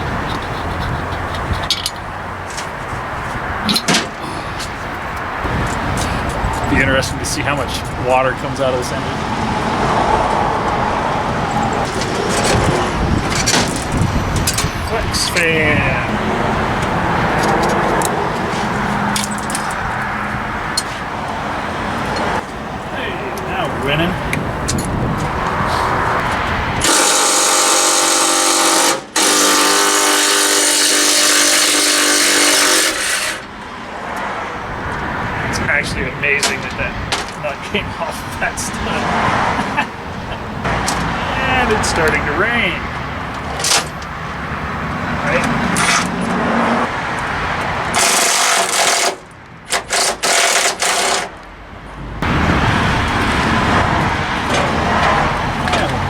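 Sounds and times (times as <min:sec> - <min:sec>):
cordless power tool whining: 0:26.8 - 0:33.5
impact wrench rattling: 0:47.9 - 0:51.4.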